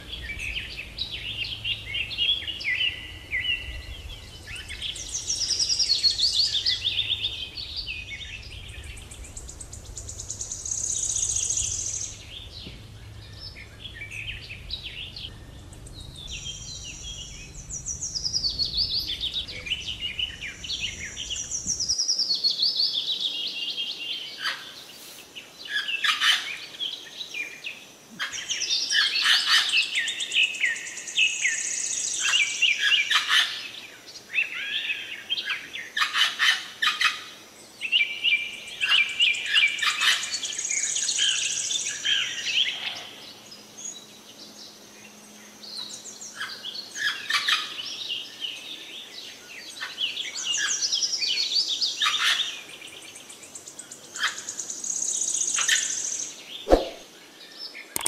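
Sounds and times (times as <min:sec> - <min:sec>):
low background rumble: 0:00.0 - 0:22.0
birds chirping and trilling: 0:00.0 - 0:58.0.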